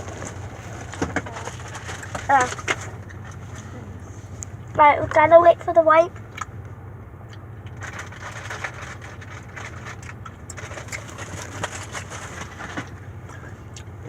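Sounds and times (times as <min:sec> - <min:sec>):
steady low hum: 0:00.0 - 0:14.0
gum crackling and clicking: 0:06.2 - 0:07.8.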